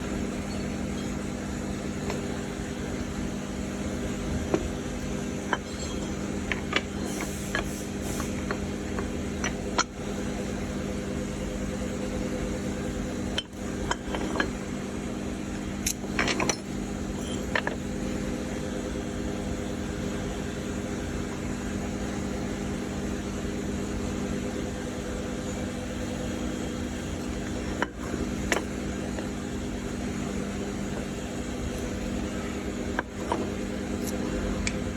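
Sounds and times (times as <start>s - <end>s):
machine hum: 0.0s - 34.9s
metal parts clinking: 15.8s - 17.8s.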